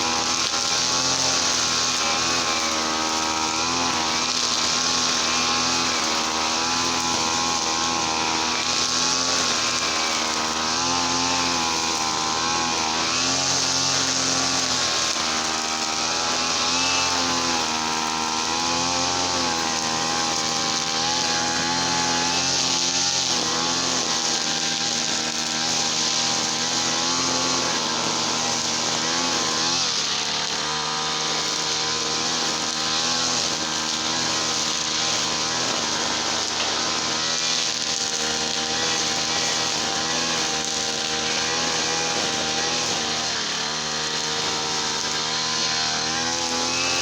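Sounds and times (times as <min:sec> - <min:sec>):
brush cutter engine running: 0:00.0 - 0:47.0.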